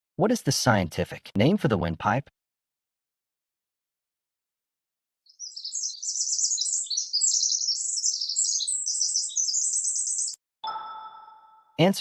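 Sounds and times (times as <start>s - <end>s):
songbird chirping and trilling: 5.2s - 11.8s.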